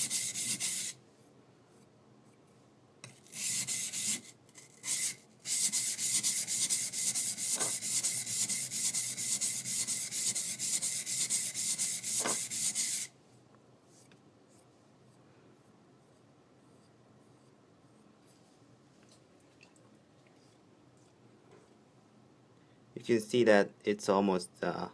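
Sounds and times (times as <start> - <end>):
knife blade scraping on whetstone: 3.0 - 13.1.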